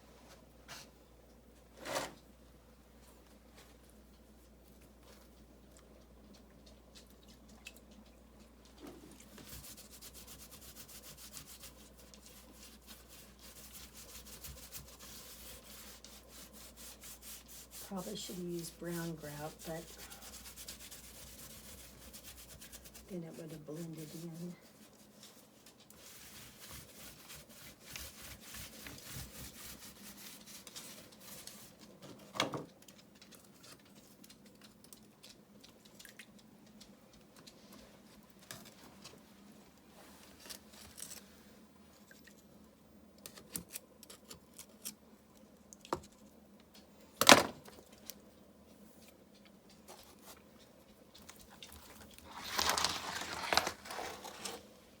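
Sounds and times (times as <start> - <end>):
grout scraping over rock: 52.1 - 54.7.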